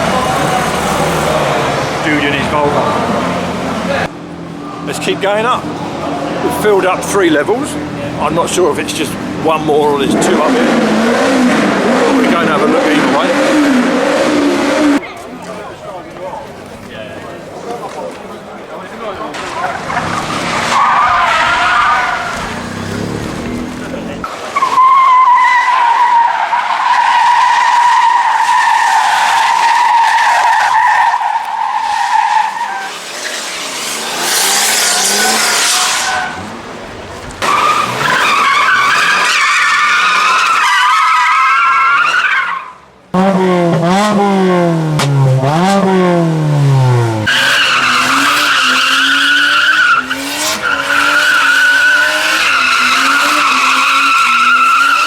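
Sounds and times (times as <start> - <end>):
engines at high revs: 8.6 - 15.0, 21.5 - 24.4, 32.8 - 36.6, 43.1 - 55.0
engine revving up and down: 9.9 - 15.0, 21.5 - 24.3, 43.1 - 55.0
tyre squeals: 19.5 - 23.5, 24.5 - 36.5, 37.4 - 42.8, 47.3 - 55.0.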